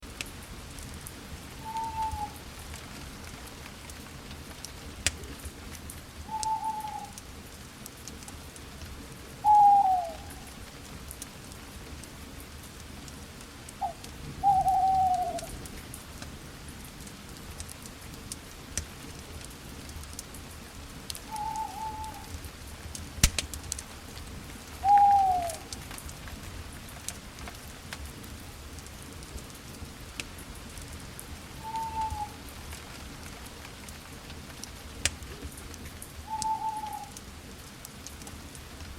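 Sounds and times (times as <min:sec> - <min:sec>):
campfire crackling and popping: 0:00.0 - 0:38.9
owl hooting: 0:01.6 - 0:02.4, 0:06.3 - 0:07.2, 0:09.4 - 0:10.4, 0:13.8 - 0:15.5, 0:21.3 - 0:22.3, 0:24.8 - 0:25.7, 0:31.6 - 0:32.4, 0:36.3 - 0:37.2.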